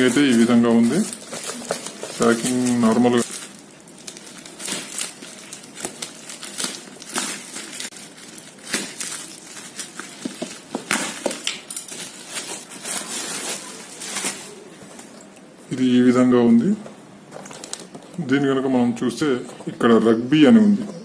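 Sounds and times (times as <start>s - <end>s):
packaging crinkling: 0.0s - 15.3s, 17.3s - 18.2s.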